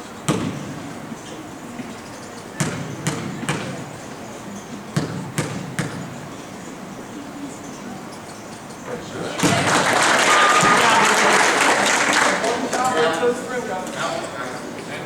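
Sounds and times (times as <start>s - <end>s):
basketball bouncing on gym floor: 0.2s - 0.8s, 1.8s - 4.1s, 4.8s - 6.4s, 9.4s - 9.7s.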